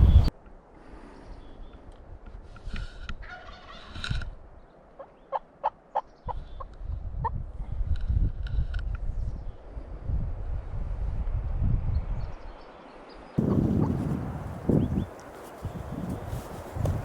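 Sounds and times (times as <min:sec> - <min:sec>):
turkey gobbling: 0:03.2 - 0:03.9, 0:13.4 - 0:16.6.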